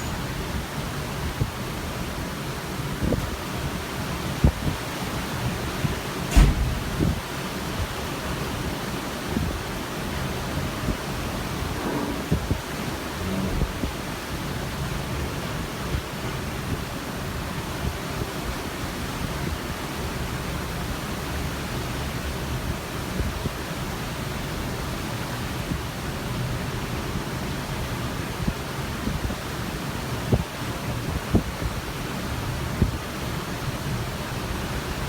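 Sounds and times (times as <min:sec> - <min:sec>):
ocean water rushing: 0:08.9 - 0:16.0
wind buffeting microphone: 0:09.1 - 0:17.0
wind rushing: 0:10.5 - 0:14.9.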